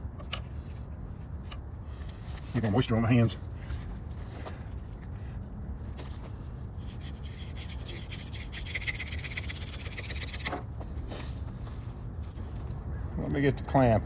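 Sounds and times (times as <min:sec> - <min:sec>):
palms rubbing spindle: 0:06.8 - 0:10.6.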